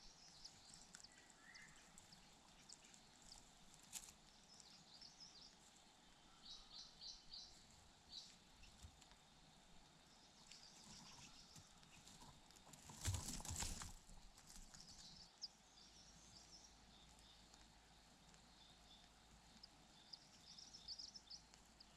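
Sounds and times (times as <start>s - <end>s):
faint high bird chirps: 0.0s - 3.5s, 6.2s - 8.9s, 10.0s - 12.4s, 18.4s - 21.9s
background hiss: 0.0s - 21.9s.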